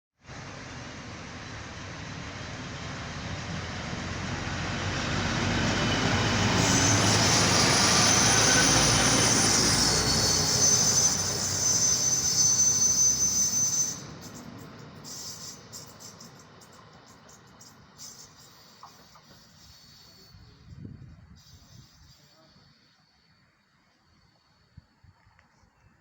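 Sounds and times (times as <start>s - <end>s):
diesel railcar passing: 0.2s - 24.7s
wheels squealing: 4.2s - 20.7s.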